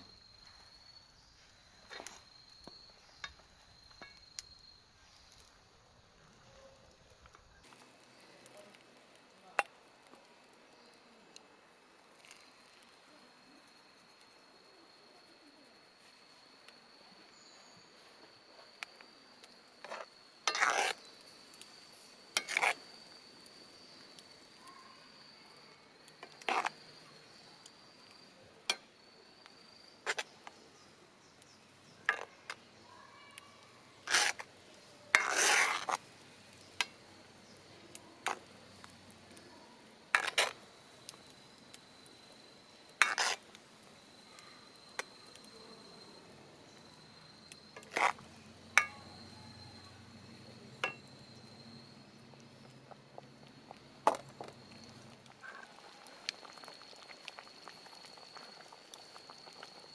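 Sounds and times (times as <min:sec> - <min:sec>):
high insect trill: 0:00.0 - 0:07.8, 0:11.7 - 0:59.9
metal utensil scraping in pot: 0:19.9 - 0:21.0, 0:22.4 - 0:22.8, 0:34.1 - 0:34.4, 0:35.1 - 0:36.0, 0:40.1 - 0:40.6, 0:43.0 - 0:43.4, 0:47.8 - 0:48.2, 0:48.8 - 0:49.2, 0:50.8 - 0:51.1.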